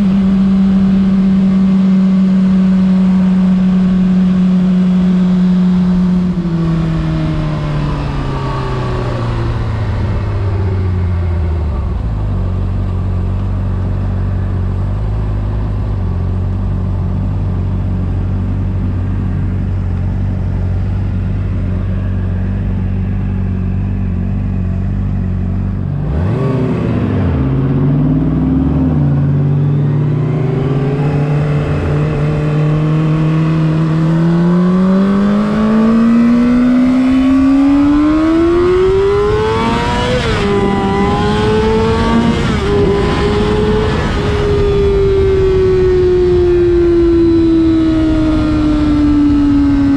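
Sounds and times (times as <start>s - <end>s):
motorcycle engine: 0.0s - 49.9s.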